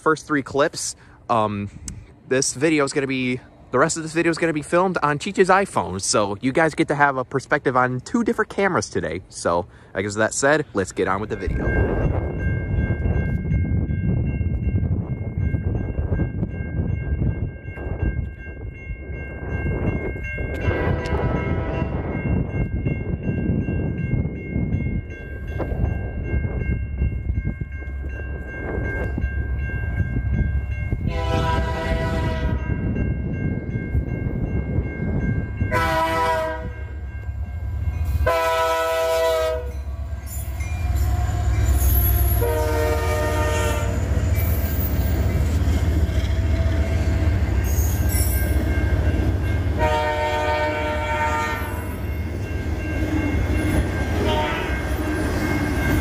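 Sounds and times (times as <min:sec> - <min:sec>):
train rumbling: 0:00.0 - 0:56.0
train horn blasts: 0:20.7 - 0:22.0, 0:31.0 - 0:32.8, 0:35.7 - 0:36.9, 0:38.2 - 0:39.9, 0:41.0 - 0:44.1, 0:49.8 - 0:52.0, 0:54.2 - 0:54.9.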